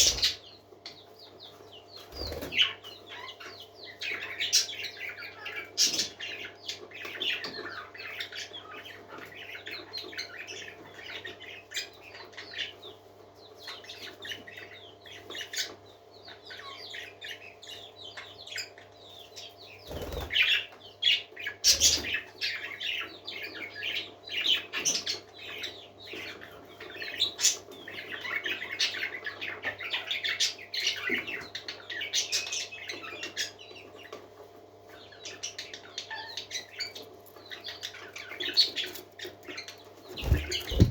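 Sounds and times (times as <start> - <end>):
parakeets chattering and chirping: 0.0 - 12.9, 13.6 - 40.9
sharp thumps: 40.1 - 40.9.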